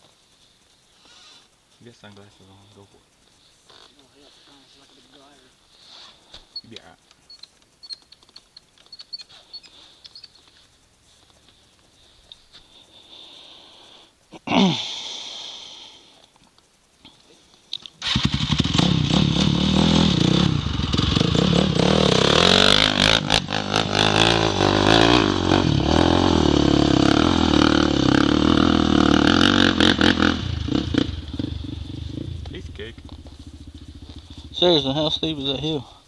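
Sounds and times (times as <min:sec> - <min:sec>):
dirt bike engine revving: 0:18.0 - 0:35.7.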